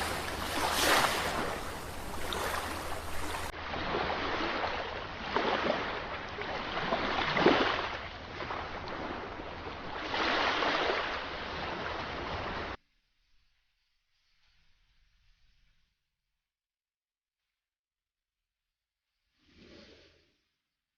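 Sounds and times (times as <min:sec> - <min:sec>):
sea waves breaking: 0:00.0 - 0:12.8.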